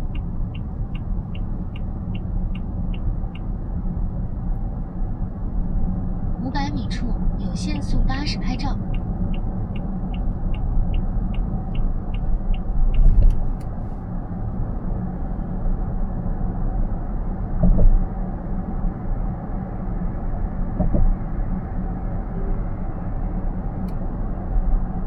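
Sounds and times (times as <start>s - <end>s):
turn signal ticking: 0.0s - 4.3s, 7.8s - 14.1s
car road and tyre rumble: 0.0s - 25.0s.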